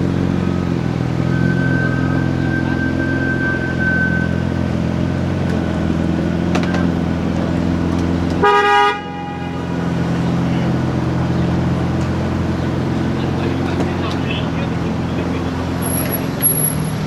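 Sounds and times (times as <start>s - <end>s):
car engine idling: 0.0s - 17.0s
car horn toot: 1.2s - 4.8s, 8.4s - 17.0s.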